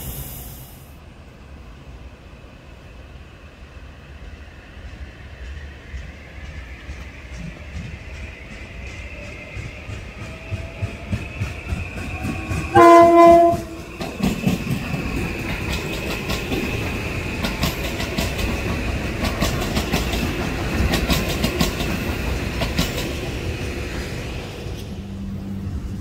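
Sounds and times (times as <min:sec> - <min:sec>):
train wheels clattering over rail joints: 0:06.4 - 0:25.0
train horn blast: 0:12.7 - 0:13.8.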